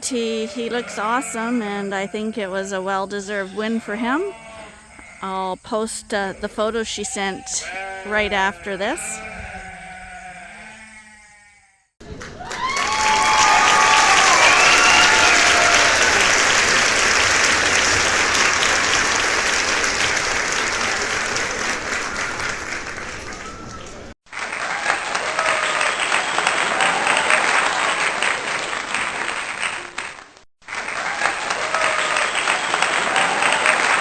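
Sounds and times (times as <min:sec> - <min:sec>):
sheep bleating: 0:00.2 - 0:11.9.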